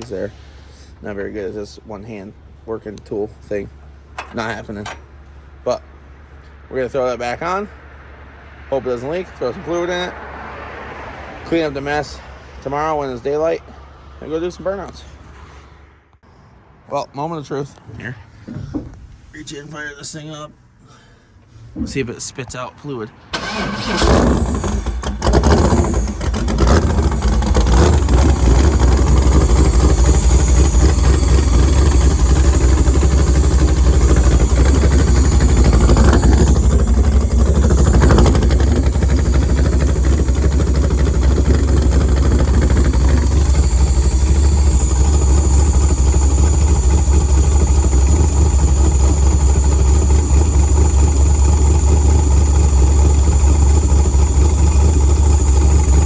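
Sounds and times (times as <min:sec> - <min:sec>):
car engine idling: 0:23.3 - 0:56.0.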